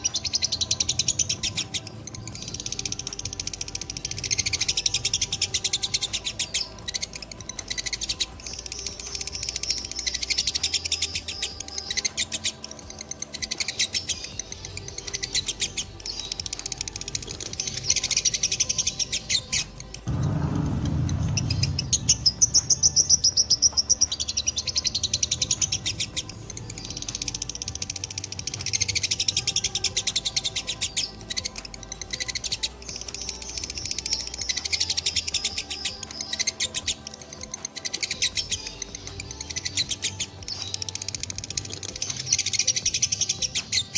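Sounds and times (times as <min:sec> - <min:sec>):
low rumble: 0:20.0 - 0:24.4.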